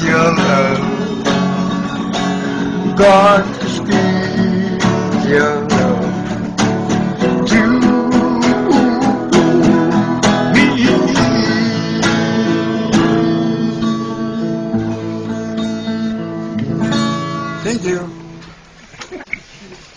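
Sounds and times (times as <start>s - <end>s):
acoustic guitar strumming: 0.0s - 18.7s
man singing held note: 7.4s - 14.0s.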